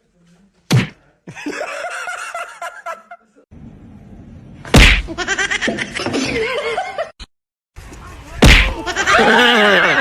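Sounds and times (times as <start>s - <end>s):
sharp loud smack: 0.7s - 1.0s, 4.7s - 5.1s, 8.4s - 8.8s.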